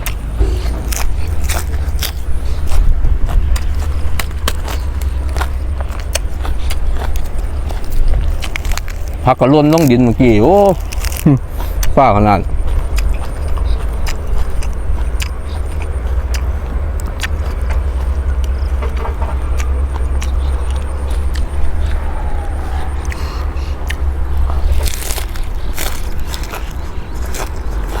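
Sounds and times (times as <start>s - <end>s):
deep low rumble: 0.0s - 9.3s, 12.4s - 28.0s.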